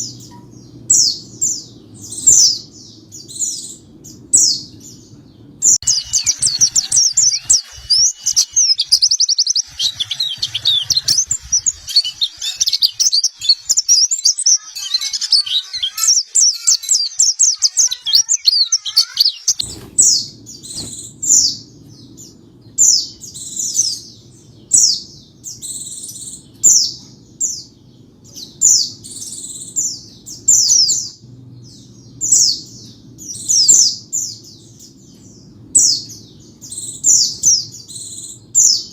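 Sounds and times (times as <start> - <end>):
bird twittering song: 0.0 - 38.9
short high chirping: 5.8 - 20.1.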